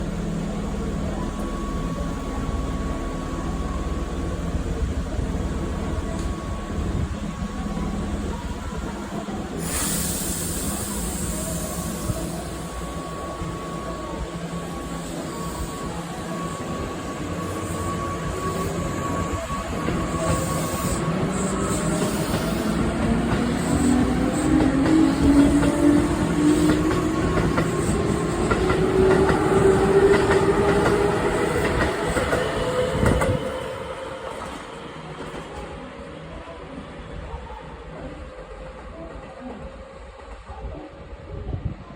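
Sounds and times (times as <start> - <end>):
electric train humming: 0.0 - 40.7
compressed-air hiss: 9.6 - 12.6.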